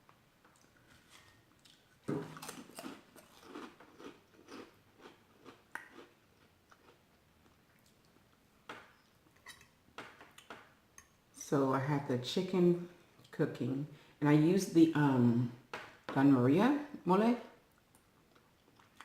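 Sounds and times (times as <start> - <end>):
chewing: 0.5 - 8.4, 17.8 - 19.0
person biting food: 1.0 - 4.7.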